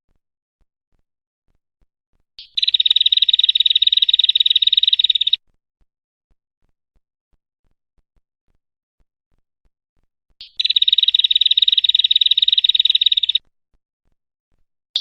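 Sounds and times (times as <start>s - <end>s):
high-pitched bird call trill: 2.4s - 5.4s, 10.4s - 13.4s.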